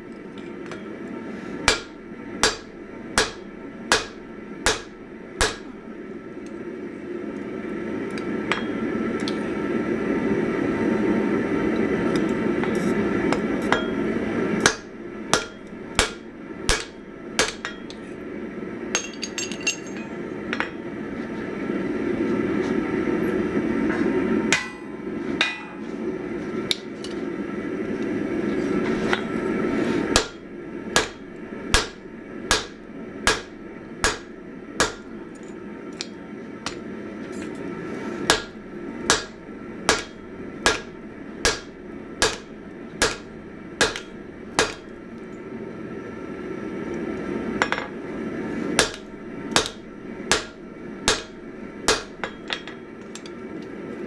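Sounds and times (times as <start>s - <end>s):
hammer striking steel on anvil: 1.6s - 5.9s, 8.5s - 9.0s, 12.6s - 18.1s, 24.5s - 25.8s, 30.1s - 37.6s, 38.3s - 45.1s, 48.8s - 53.3s.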